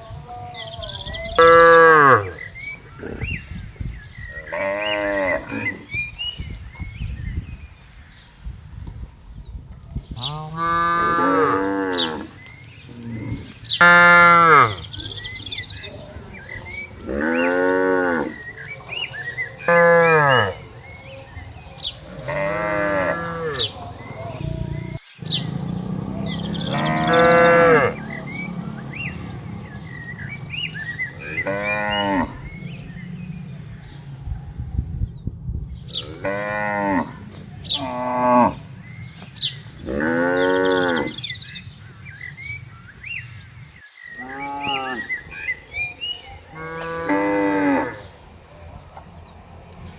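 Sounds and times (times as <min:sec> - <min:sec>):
cattle mooing: 0:10.3 - 0:12.4, 0:17.0 - 0:18.5, 0:22.0 - 0:33.6, 0:35.9 - 0:38.7, 0:39.8 - 0:41.3, 0:44.2 - 0:45.2, 0:46.5 - 0:48.1.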